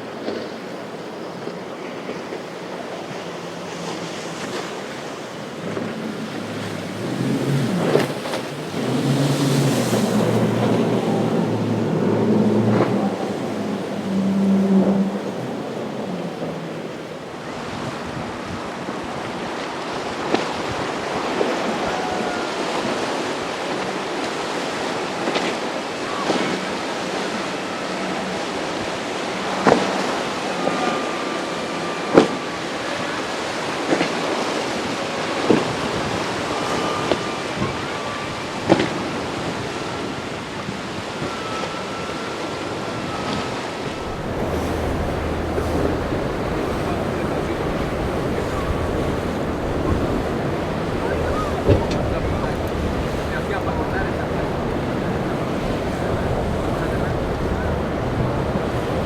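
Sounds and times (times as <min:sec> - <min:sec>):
wind buffeting microphone: 0:00.0 - 0:31.3, 0:32.0 - 0:59.0
surf rushing: 0:00.0 - 0:59.0
faint whistle-like tones: 0:36.2 - 0:38.7, 0:40.9 - 0:59.0.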